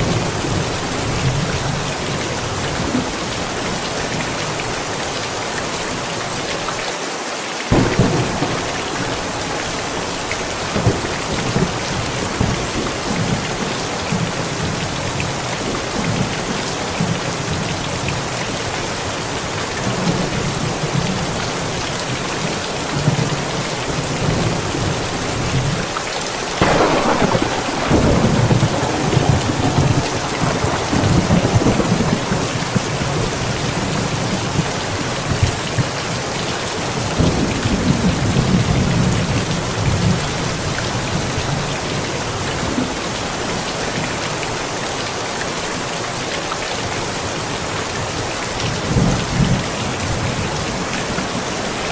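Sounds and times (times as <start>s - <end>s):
heavy rain falling: 0.0s - 51.9s
thunderclap and rumbling thunder: 7.7s - 17.7s, 26.6s - 35.9s, 36.9s - 43.0s.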